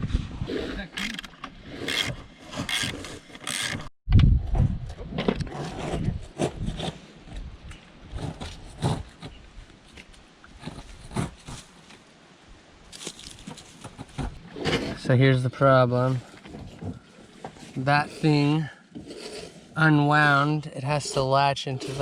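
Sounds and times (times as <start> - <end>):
scraping and rubbing strokes: 17.2 - 22.0.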